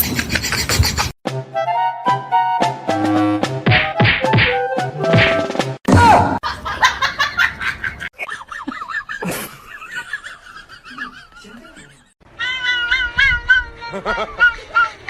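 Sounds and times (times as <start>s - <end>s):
people laughing: 6.4s - 15.0s.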